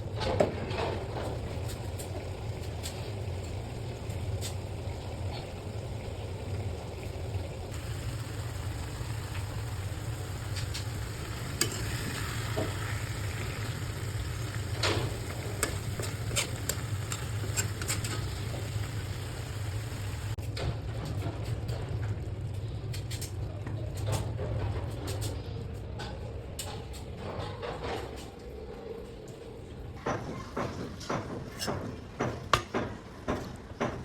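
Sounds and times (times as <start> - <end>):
constant low hum: 0.0 - 30.1
curry sizzling in a pan: 1.3 - 20.4
utensil clicking against pan: 10.5 - 19.1.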